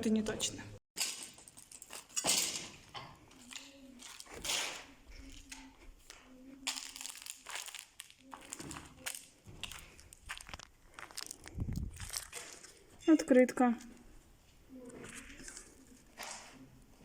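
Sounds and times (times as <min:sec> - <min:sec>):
paper rustling and crunching: 0:06.6 - 0:12.8.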